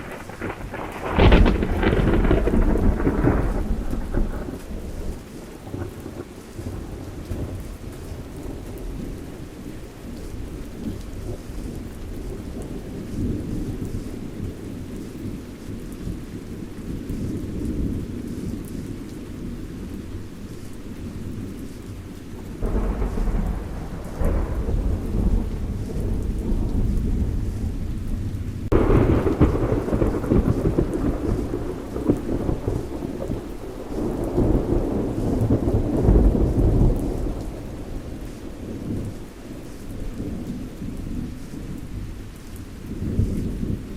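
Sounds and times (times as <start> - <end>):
rolling thunder: 0.0 - 9.5, 21.0 - 42.1
rain falling: 0.0 - 43.9.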